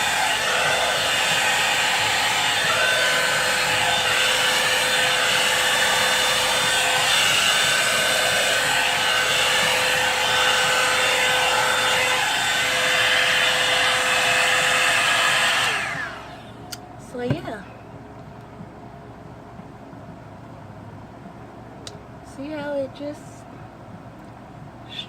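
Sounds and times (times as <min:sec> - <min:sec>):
blow-dryer brush motor whine: 0:00.0 - 0:17.6.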